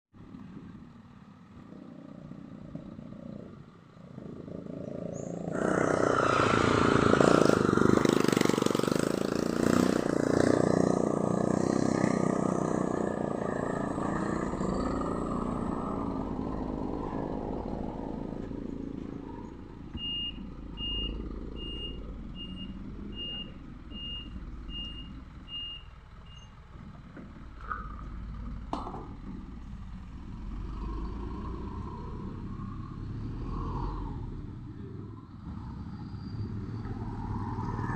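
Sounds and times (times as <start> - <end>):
truck engine revving: 4.1 - 34.7
reversing alarm beeps: 19.9 - 26.6.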